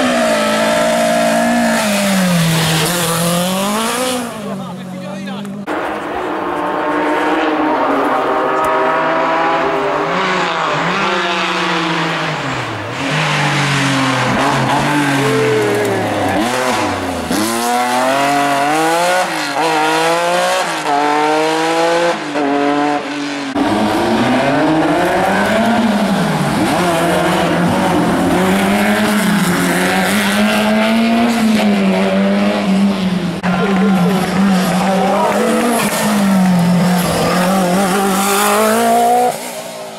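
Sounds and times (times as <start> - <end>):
rally car engine revving: 0.0 - 39.9.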